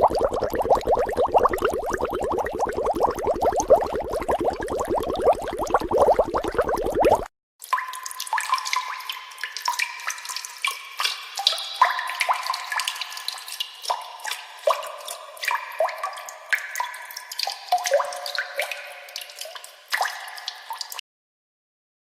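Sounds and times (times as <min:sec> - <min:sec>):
water drops plinking: 0:00.0 - 0:10.1.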